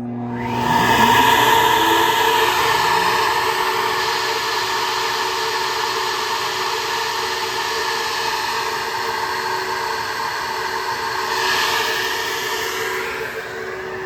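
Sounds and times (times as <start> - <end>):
vacuum motor whine: 0.0 - 14.0
rush of air: 0.4 - 5.4.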